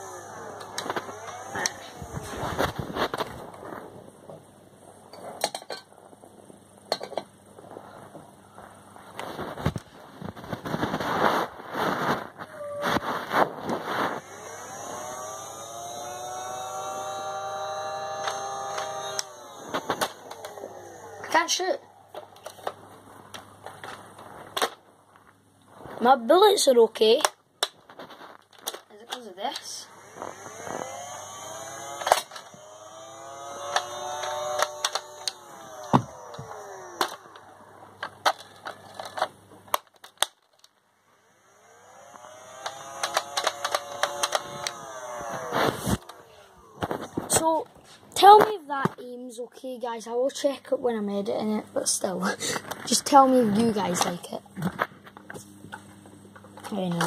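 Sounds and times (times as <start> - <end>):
blaster flywheel motors whining: 0.0 - 3.8, 10.4 - 23.4, 28.0 - 48.5
sharp plastic clicks: 18.1 - 20.7, 32.0 - 32.6, 33.6 - 40.8, 42.1 - 47.4
blaster clicks: 42.6 - 44.8.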